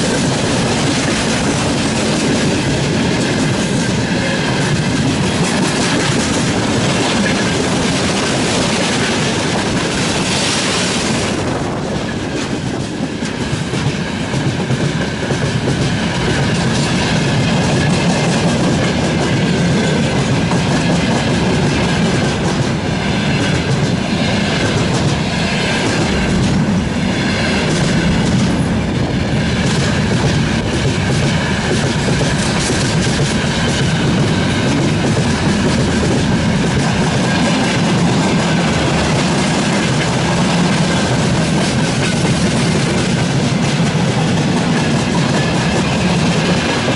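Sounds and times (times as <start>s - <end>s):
freight train wheels clattering: 0.0s - 46.9s
high squeal of wheels on rail: 29.8s - 46.9s.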